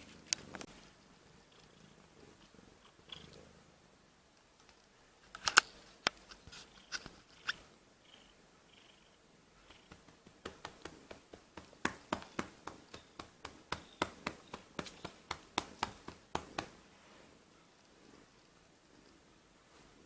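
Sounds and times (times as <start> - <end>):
hand patting a cat: 9.9 - 16.8.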